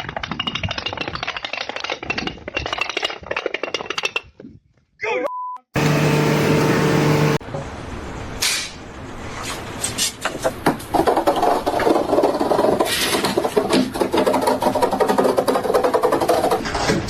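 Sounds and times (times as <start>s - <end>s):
held tone: 5.3s - 7.4s
rapid clicks and scraping: 9.8s - 17.0s.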